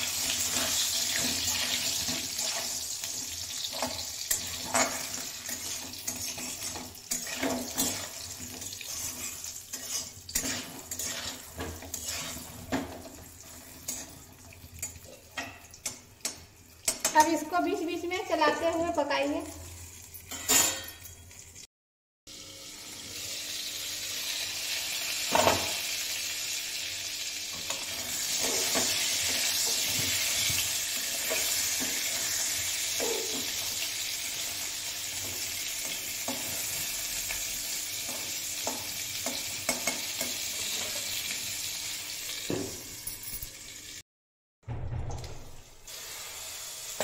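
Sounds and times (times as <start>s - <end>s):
vegetables sizzling in oil: 0.0s - 20.2s, 22.3s - 43.0s, 45.9s - 47.0s
spatula knocking and scraping pan: 0.4s - 14.2s, 27.6s - 33.7s.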